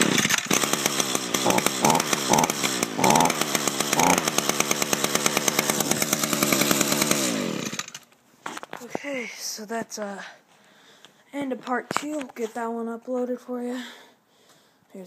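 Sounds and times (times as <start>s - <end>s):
string trimmer engine running: 0.0s - 8.1s.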